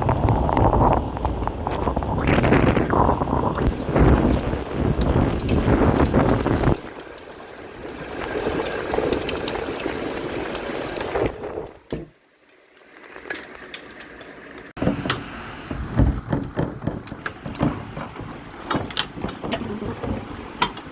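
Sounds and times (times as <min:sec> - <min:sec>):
hailstones clattering: 0:00.0 - 0:11.8, 0:15.8 - 0:20.9
wind buffeting microphone: 0:00.0 - 0:11.9
rain rushing: 0:00.0 - 0:20.9.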